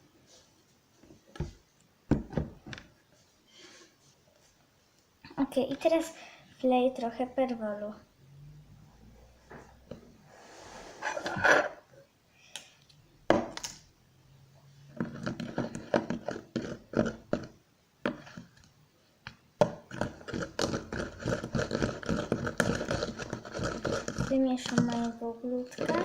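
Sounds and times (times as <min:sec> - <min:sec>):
spoon scraping against bowl: 0:19.9 - 0:25.1.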